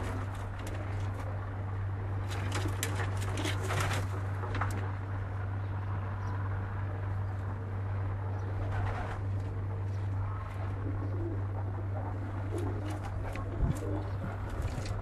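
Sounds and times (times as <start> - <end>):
pigeons cooing: 0.0 - 4.9, 5.5 - 15.0
steady low hum: 0.0 - 15.0
clicks and rustles: 2.2 - 5.0, 12.4 - 15.0.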